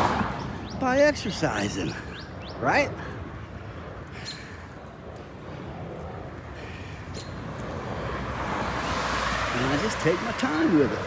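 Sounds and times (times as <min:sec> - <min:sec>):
rushing passing traffic: 0:00.0 - 0:00.8, 0:07.4 - 0:11.0
bicycle road noise: 0:00.0 - 0:11.0
wind rumbling on microphone: 0:00.0 - 0:11.0.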